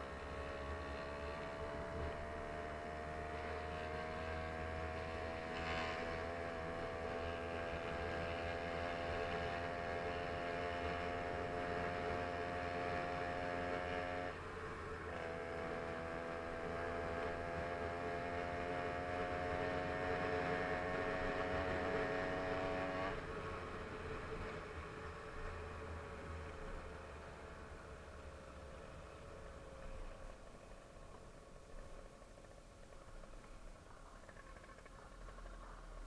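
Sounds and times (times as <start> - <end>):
small motorbike engine running: 0.0 - 25.6, 28.8 - 36.0
dull rumble: 30.0 - 36.0.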